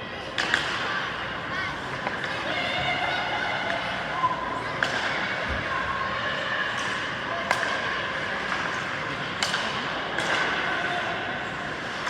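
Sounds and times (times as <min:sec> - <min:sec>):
spectators chatting: 0:00.0 - 0:12.0
hockey stick hitting puck: 0:00.4 - 0:00.9, 0:09.4 - 0:10.6.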